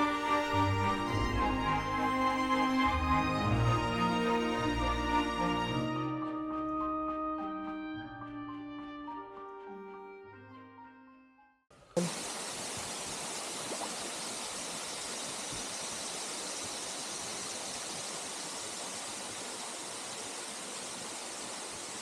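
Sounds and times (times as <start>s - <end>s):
waterfall rushing: 12.0s - 22.0s.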